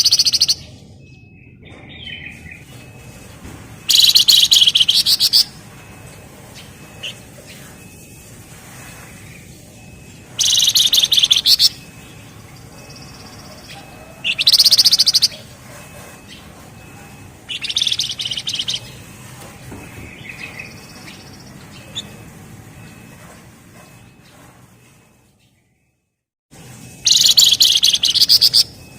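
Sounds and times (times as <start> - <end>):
bird rattling trills: 0.0 - 0.7, 3.8 - 22.3, 27.0 - 28.8.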